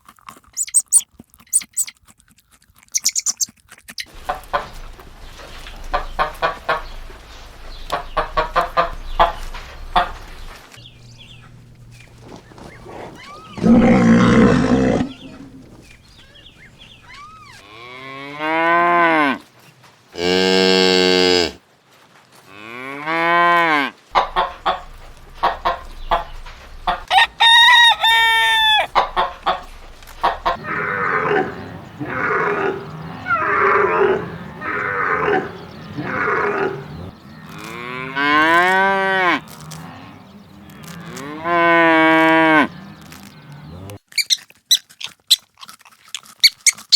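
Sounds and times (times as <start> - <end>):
chickens clucking: 0.6 - 1.9, 3.0 - 17.6, 24.1 - 37.7
cattle mooing: 11.0 - 15.9, 20.2 - 21.6, 30.6 - 44.0
rooster crowing: 27.1 - 28.9.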